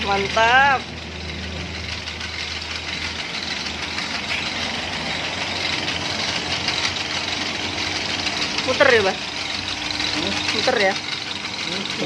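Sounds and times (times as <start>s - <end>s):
motor humming and rattling: 0.0s - 12.0s.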